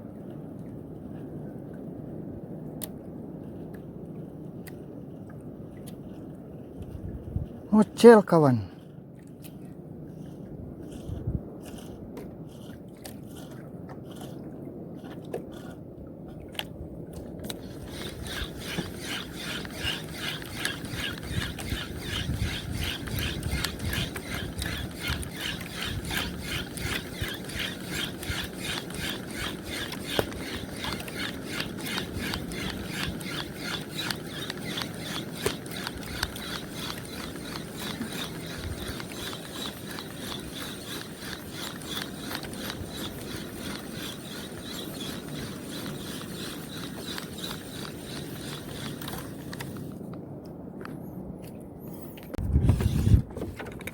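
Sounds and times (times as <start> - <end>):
fishing reel gears ticking: 17.5 - 49.9.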